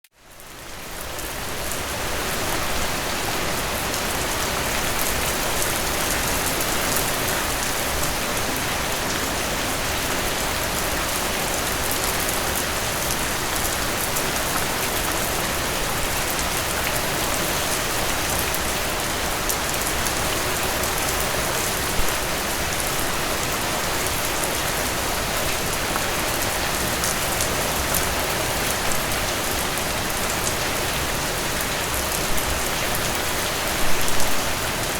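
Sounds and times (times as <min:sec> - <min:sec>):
rain splashing on surfaces: 0:00.2 - 0:34.9.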